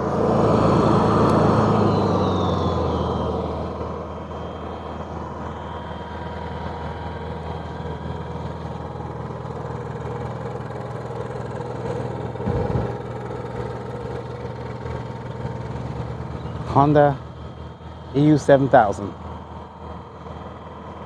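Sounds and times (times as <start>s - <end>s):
generator engine hum: 0.0s - 21.0s
low rumble: 12.4s - 13.1s.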